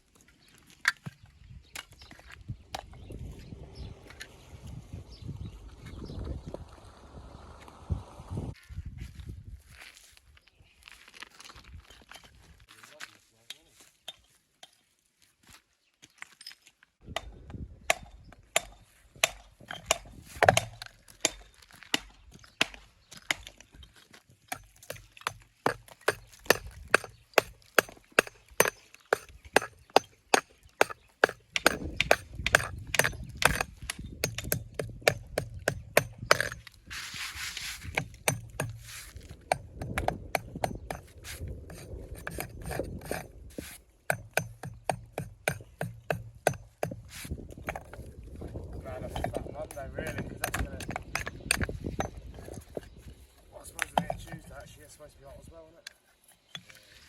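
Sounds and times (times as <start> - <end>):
hammer tapping stone: 24.5 - 36.6, 37.9 - 38.8, 39.5 - 41.1, 44.1 - 47.0, 49.1 - 52.6, 53.8 - 54.5.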